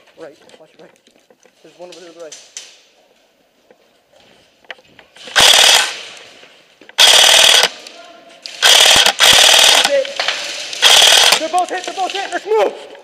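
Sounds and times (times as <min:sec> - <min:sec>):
airsoft rifles firing bursts: 0:05.2 - 0:06.1, 0:07.0 - 0:07.8, 0:08.6 - 0:11.7.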